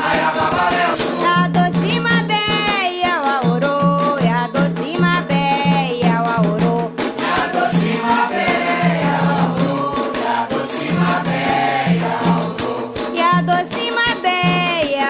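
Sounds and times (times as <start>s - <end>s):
group singing a chant: 0.0s - 1.8s, 7.0s - 14.6s
rattle percussion: 0.0s - 15.0s.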